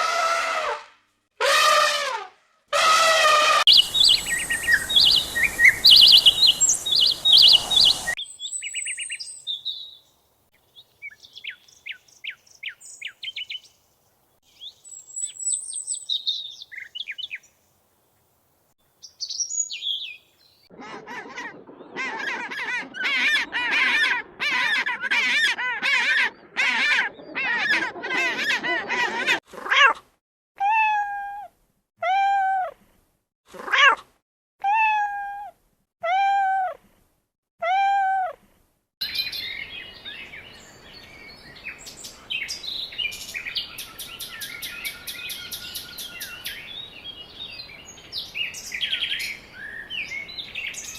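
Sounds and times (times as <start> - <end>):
high bird trills: 3.6 - 9.8
harsh bird calls: 3.6 - 9.9, 39.0 - 47.0
birds chirping: 3.6 - 17.8, 19.0 - 20.7, 39.0 - 50.9.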